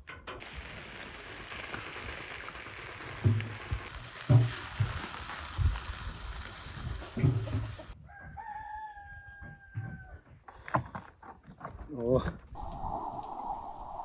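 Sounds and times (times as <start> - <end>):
steady hiss: 0.4 - 8.0, 12.6 - 14.0
rooster crowing: 8.0 - 10.2.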